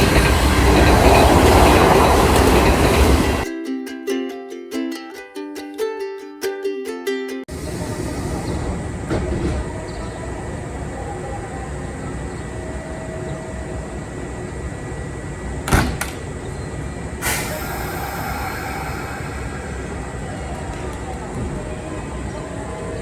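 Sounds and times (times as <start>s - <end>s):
electric train running hum: 0.0s - 3.5s, 7.5s - 23.0s
hiss of air: 17.1s - 21.3s.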